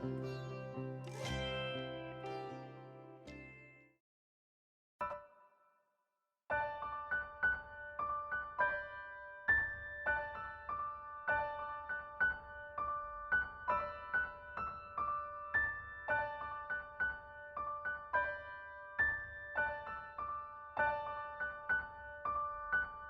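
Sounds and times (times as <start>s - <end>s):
gentle piano melody: 0.0s - 3.8s, 6.5s - 23.0s.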